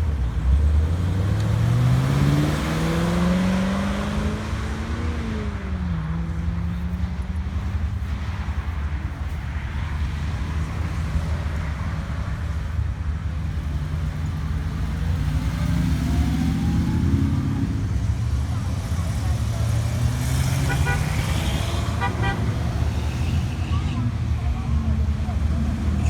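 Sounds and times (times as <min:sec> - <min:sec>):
car engine revving: 0:00.0 - 0:07.8, 0:13.4 - 0:26.0.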